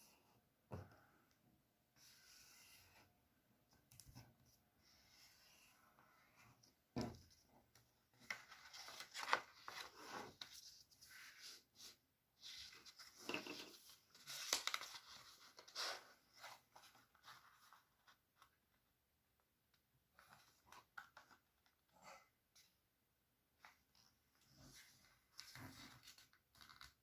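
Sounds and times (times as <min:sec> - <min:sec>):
paper rustling and crinkling: 0:08.1 - 0:11.6, 0:12.4 - 0:18.5, 0:24.7 - 0:27.0.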